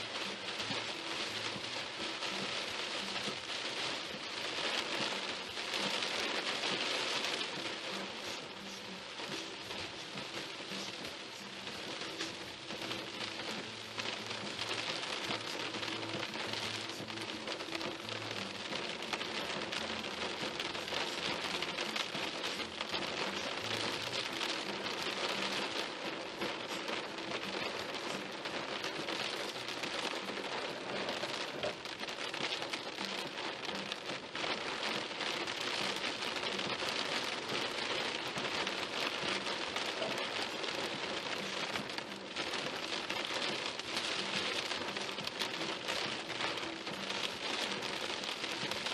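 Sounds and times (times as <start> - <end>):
rain hitting car windshield: 0.0 - 48.9.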